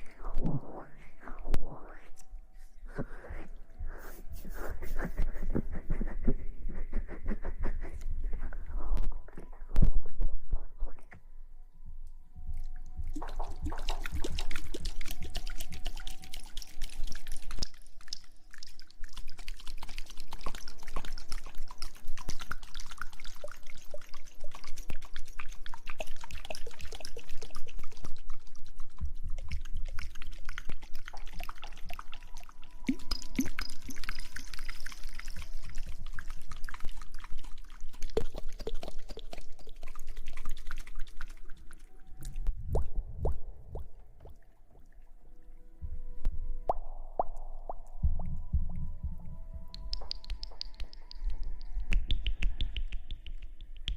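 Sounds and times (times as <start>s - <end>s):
wet lather crackling: 13.2s - 42.4s.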